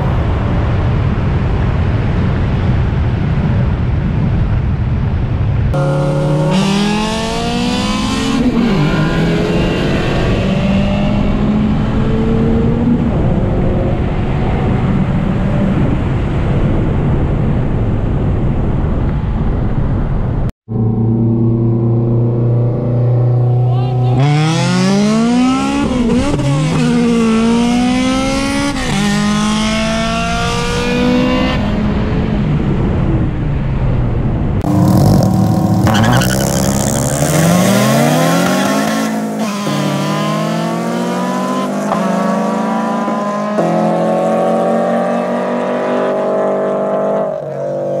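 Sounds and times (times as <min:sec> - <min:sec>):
car engines accelerating hard: 0:05.7 - 0:17.2, 0:20.7 - 0:33.7, 0:34.6 - 0:48.0.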